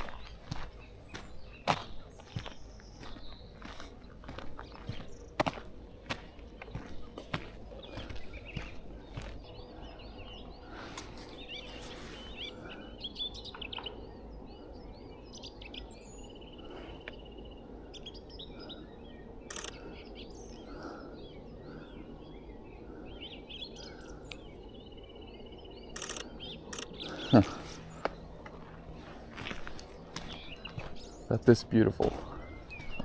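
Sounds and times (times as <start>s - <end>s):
small birds singing and chirping: 0.0s - 33.0s
sharp clicks: 19.5s - 19.8s, 26.0s - 27.1s.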